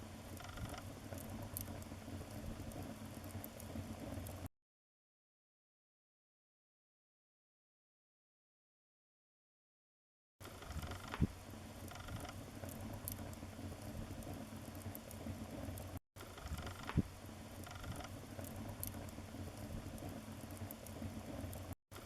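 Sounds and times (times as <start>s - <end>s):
wood fire crackling: 0.0s - 4.5s, 10.4s - 22.0s.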